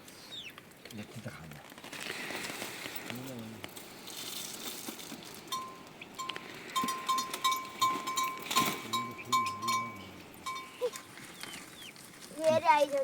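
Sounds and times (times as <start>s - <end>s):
livestock bell clinking: 5.5s - 11.1s.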